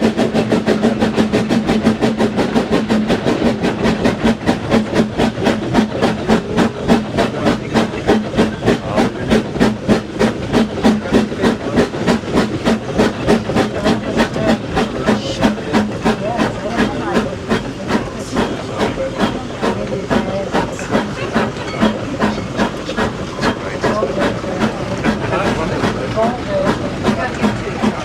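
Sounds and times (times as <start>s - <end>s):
steam locomotive chuffing: 0.0s - 28.0s.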